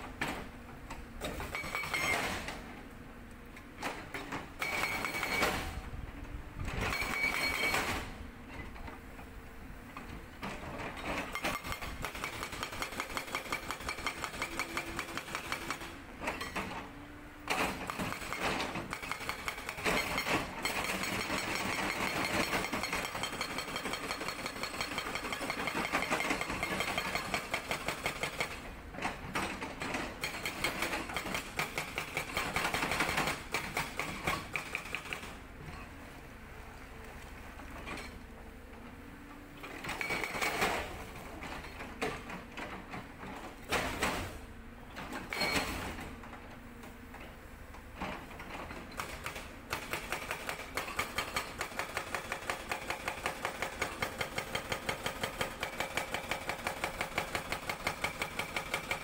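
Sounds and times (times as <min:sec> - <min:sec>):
hydraulic breaker hammering rock: 0:01.2 - 0:02.6, 0:04.6 - 0:05.8, 0:06.8 - 0:08.0, 0:11.2 - 0:16.8, 0:17.5 - 0:28.7, 0:29.3 - 0:35.3, 0:48.9 - 0:59.0.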